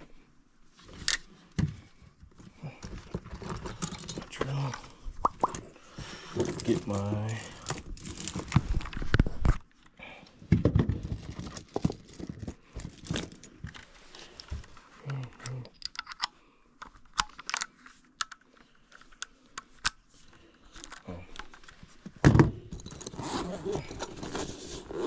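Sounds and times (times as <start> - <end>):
tools clicking and knocking: 15.4 - 18.4.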